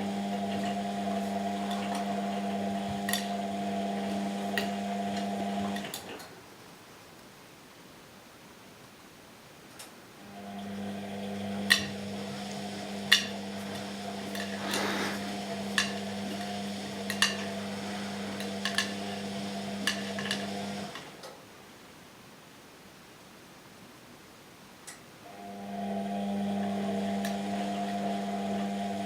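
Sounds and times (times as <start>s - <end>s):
washing machine motor humming: 0.0s - 6.2s, 10.2s - 21.2s, 25.3s - 29.0s.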